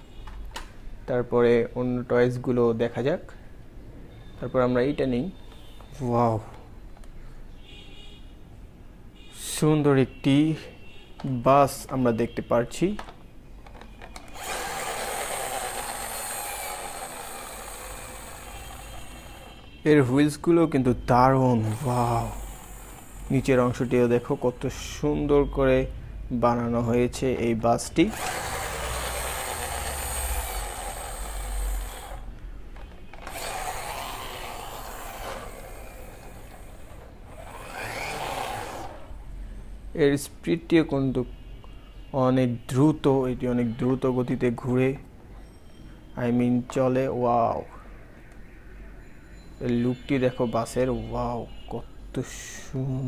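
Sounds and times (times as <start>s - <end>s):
toy friction motor whirring: 13.7s - 19.8s, 21.3s - 24.8s, 28.0s - 39.2s.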